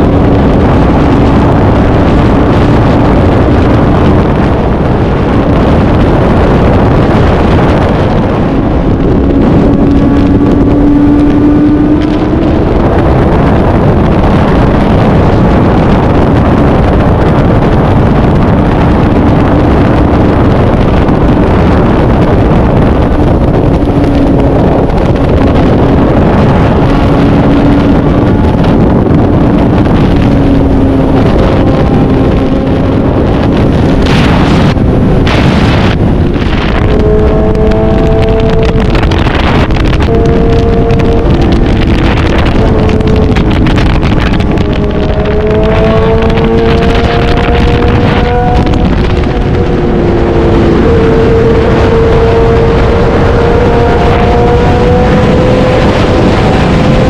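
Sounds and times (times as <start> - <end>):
motorcycle engine running: 0.0 - 57.0
wind rush on microphone: 0.0 - 57.0.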